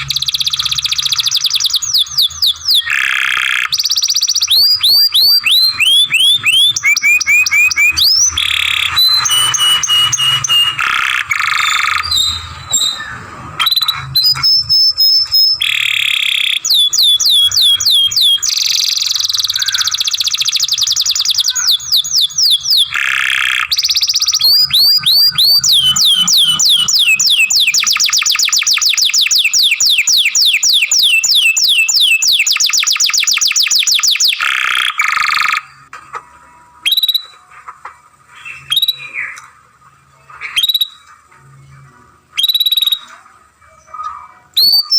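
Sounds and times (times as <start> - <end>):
canary singing trills: 0.0 - 35.9, 36.6 - 37.6, 38.2 - 39.4, 40.0 - 44.9
canary short calls: 4.6 - 12.1.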